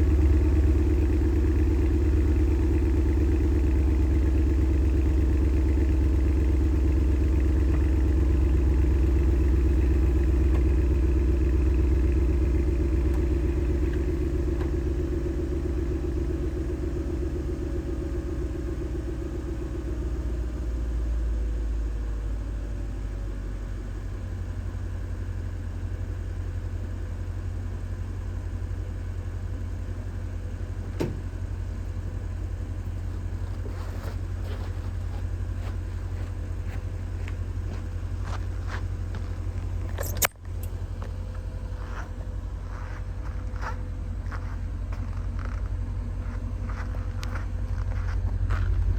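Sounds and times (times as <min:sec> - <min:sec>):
car engine idling: 0:00.0 - 0:48.9
short click: 0:39.9 - 0:40.8.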